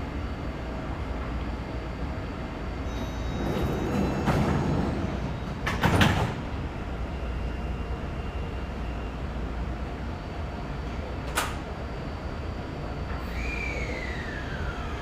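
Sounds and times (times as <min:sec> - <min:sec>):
train low hum: 0:00.0 - 0:15.0
train sliding doors closing: 0:02.8 - 0:07.2, 0:11.2 - 0:11.8
doors shutting with a clunk: 0:03.5 - 0:06.5.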